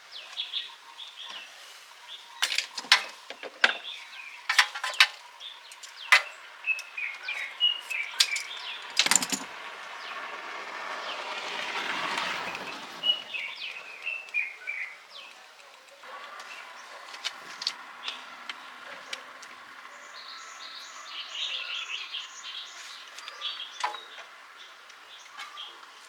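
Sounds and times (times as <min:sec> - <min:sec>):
birds chirping: 0:00.0 - 0:26.0
vehicle passing: 0:06.4 - 0:26.0
sharp clicks or knocks: 0:08.2 - 0:09.5.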